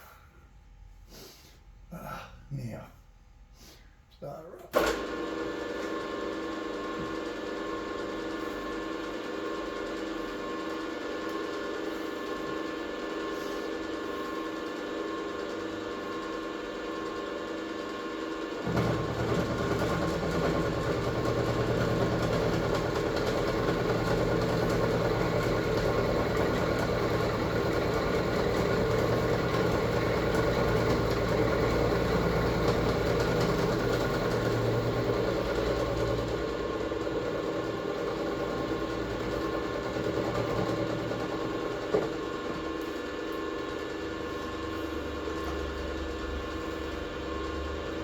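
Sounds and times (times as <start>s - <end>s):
air compressor chugging: 18.6s - 43.0s.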